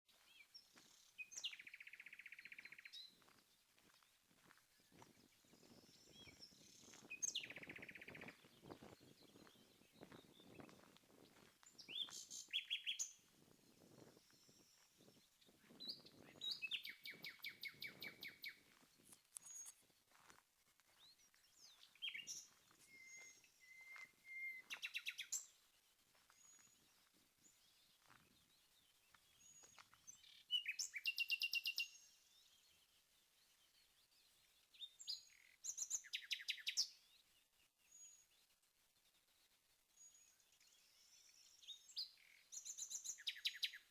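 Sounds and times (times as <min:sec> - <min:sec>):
nightingale singing: 0:00.3 - 0:03.2, 0:04.9 - 0:18.6, 0:21.0 - 0:25.7, 0:29.4 - 0:32.1, 0:34.7 - 0:37.0, 0:40.7 - 0:43.9.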